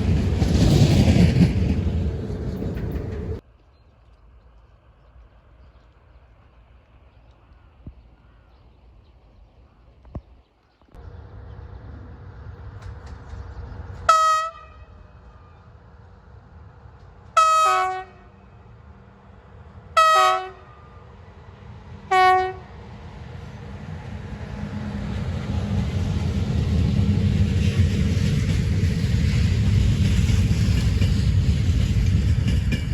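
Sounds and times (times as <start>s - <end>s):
train rumble: 0.0s - 3.4s, 10.9s - 32.9s
locomotive horn blasts: 14.1s - 15.5s, 17.4s - 18.5s, 20.0s - 21.0s, 22.1s - 22.7s.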